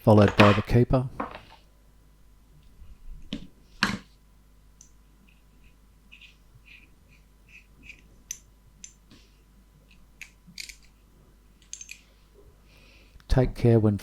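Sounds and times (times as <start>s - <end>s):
small parts clicking and ticking: 9.9s - 11.0s, 11.6s - 12.1s.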